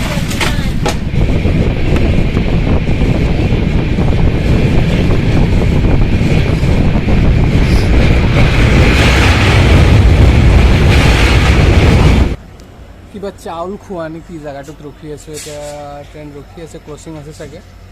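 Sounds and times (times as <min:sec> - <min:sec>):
wind buffeting microphone: 0:00.0 - 0:12.4
train rumbling on track: 0:00.0 - 0:17.9.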